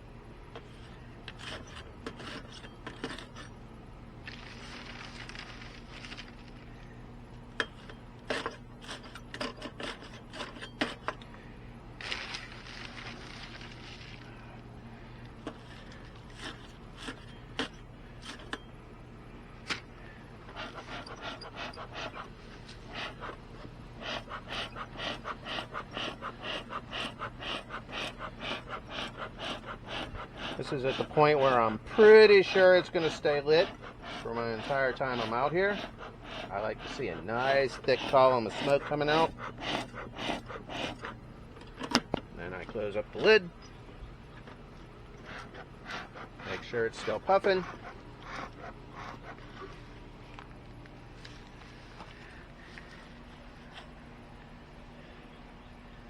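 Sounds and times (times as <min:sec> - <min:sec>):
bee smoker clattering: 0:12.0 - 0:54.0.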